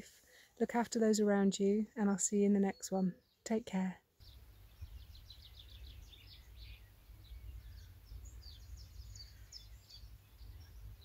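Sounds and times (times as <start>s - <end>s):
songbirds singing: 0.3s - 11.0s.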